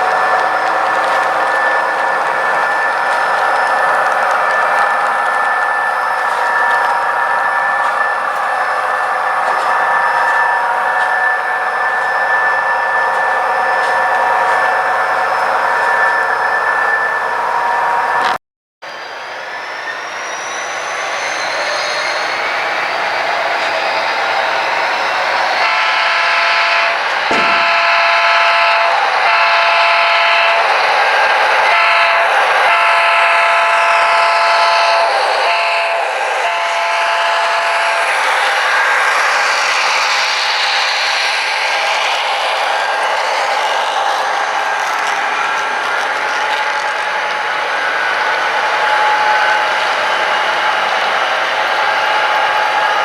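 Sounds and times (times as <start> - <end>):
high steady whine: 0.0 - 30.8
model train whirring hum: 0.0 - 53.0.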